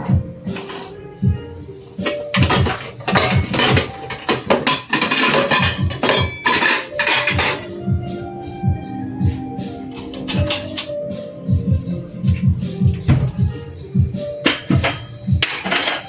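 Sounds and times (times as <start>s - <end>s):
background music with beat: 0.0s - 16.0s
dishes and cutlery clattering: 0.5s - 1.0s, 2.0s - 7.7s, 9.9s - 11.0s, 14.4s - 16.0s.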